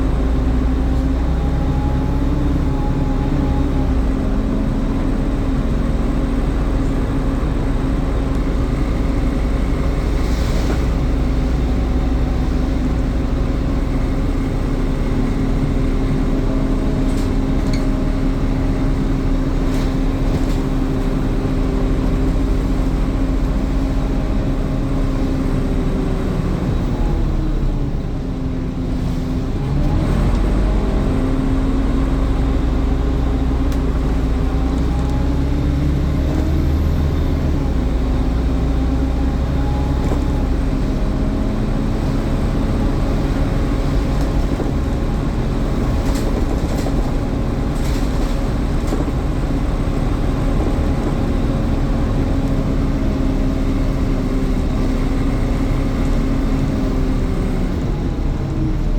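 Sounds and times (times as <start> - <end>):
bus engine running: 0.0 - 58.9.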